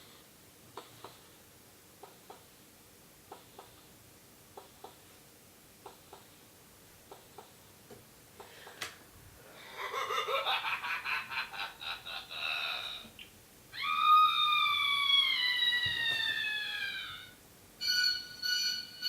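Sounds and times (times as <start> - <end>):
high voice-like cry: 13.7 - 17.4.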